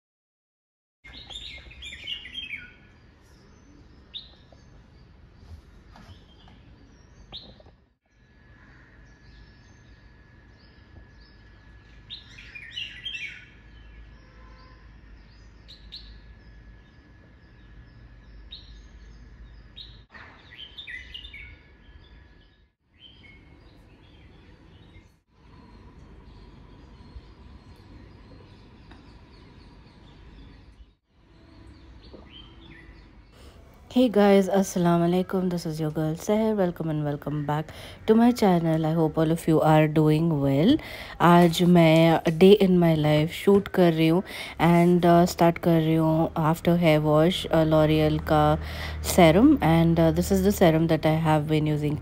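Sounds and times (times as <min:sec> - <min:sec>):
birds chirping: 0:01.0 - 0:52.0.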